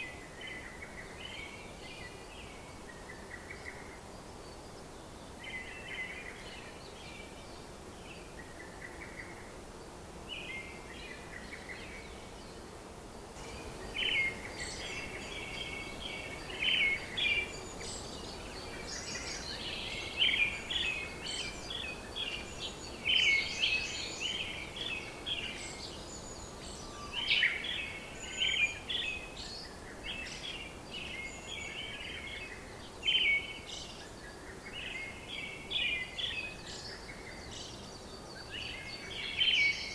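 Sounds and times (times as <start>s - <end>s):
faint steady background hiss: 0.0s - 39.9s
birds chirping: 13.4s - 39.9s.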